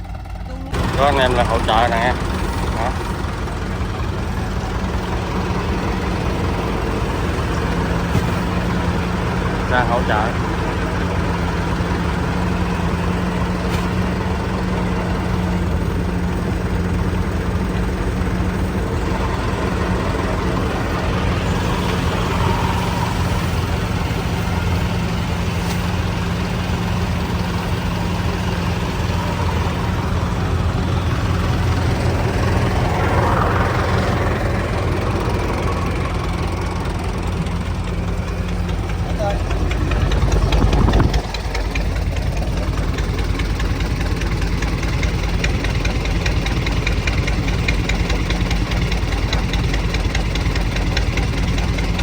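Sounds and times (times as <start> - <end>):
heavy engine running steadily: 0.0 - 52.0.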